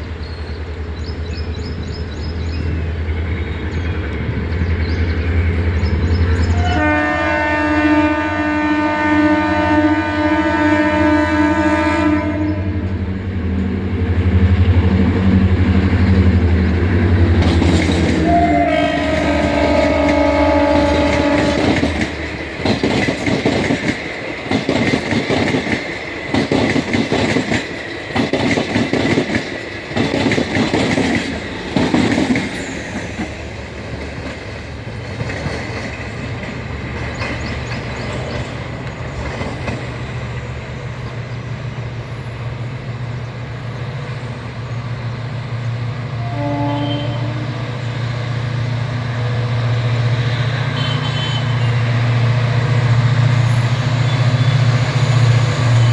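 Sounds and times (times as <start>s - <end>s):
train wheels clattering over joints: 17.1s - 40.6s.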